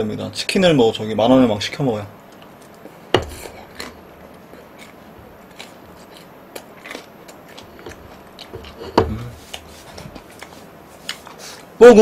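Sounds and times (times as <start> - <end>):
person chewing noodles: 2.4 - 11.7.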